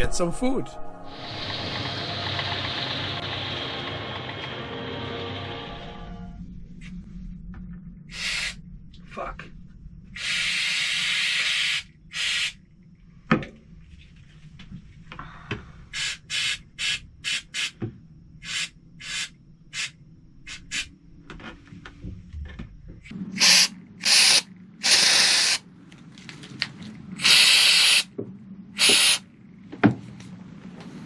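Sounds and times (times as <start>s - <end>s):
aerosol can spraying: 10.2s - 12.6s, 16.0s - 17.8s, 18.4s - 19.9s, 20.5s - 20.9s, 23.4s - 25.6s, 27.2s - 28.1s, 28.8s - 29.2s.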